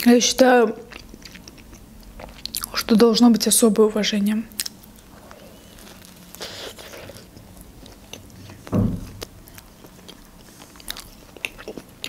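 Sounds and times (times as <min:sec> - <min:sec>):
chewing with wet mouth clicks: 0:00.9 - 0:02.9, 0:04.5 - 0:05.1, 0:05.8 - 0:12.0
short low thud: 0:08.7 - 0:09.2.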